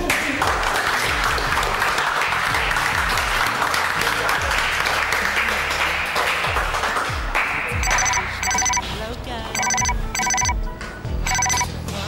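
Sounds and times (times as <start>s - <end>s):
applause: 0.0s - 8.8s.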